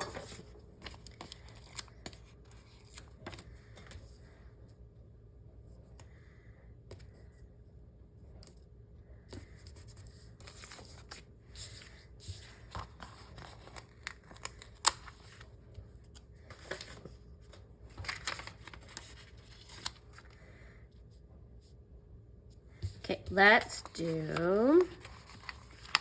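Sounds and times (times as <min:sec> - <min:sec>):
paper sticker sheets rustling: 0:00.0 - 0:04.3, 0:09.4 - 0:20.4, 0:22.8 - 0:26.0.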